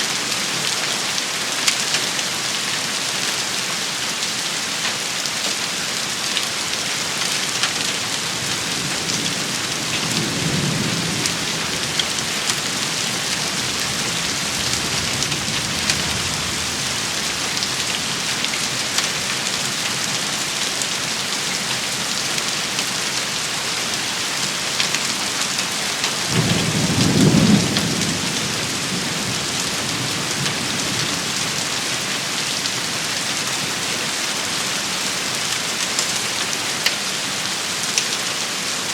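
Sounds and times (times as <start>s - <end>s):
rain shower: 0.0s - 38.9s
low thunder rumbling: 8.6s - 18.2s, 26.3s - 31.4s.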